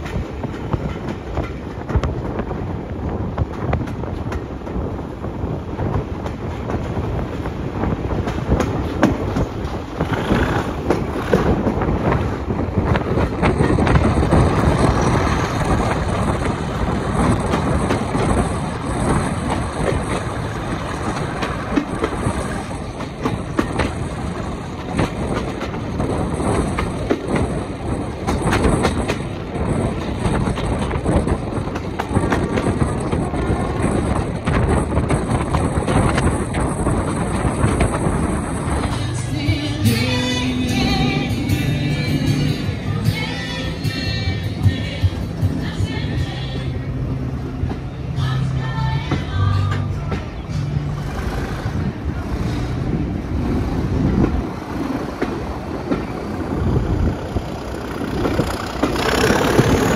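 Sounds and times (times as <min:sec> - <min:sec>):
wheels clicking over rail joints: 0:00.0 - 0:46.8, 0:47.4 - 0:59.9
wind on microphone: 0:00.0 - 0:47.8, 0:51.2 - 0:59.9
train wheels rumbling on rails: 0:00.0 - 0:59.9.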